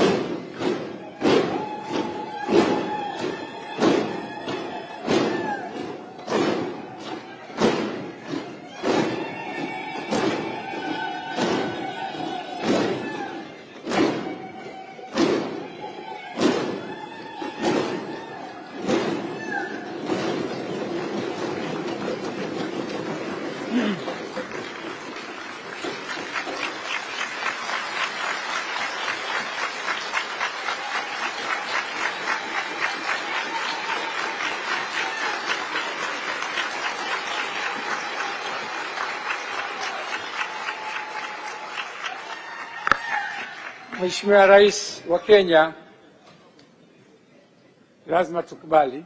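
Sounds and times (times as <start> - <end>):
crowd droning vocal sounds: 0.0 - 25.3
crowd clapping in rhythm: 0.0 - 45.0.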